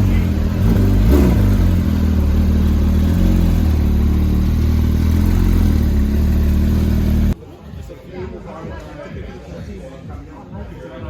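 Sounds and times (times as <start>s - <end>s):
sports car engine idling: 0.0s - 7.4s.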